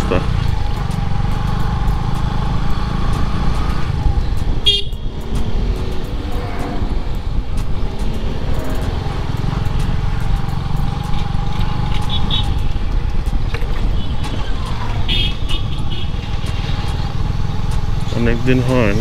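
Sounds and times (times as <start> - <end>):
motorcycle engine running: 0.0 - 19.0
wind rumble on microphone: 3.2 - 19.0
horn toot: 4.6 - 5.1.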